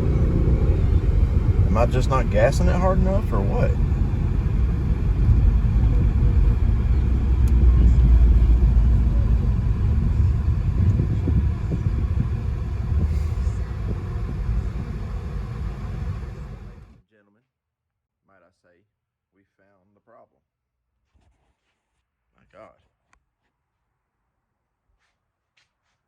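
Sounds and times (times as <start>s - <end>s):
car engine under throttle: 0.0s - 16.9s
road noise: 0.0s - 17.0s.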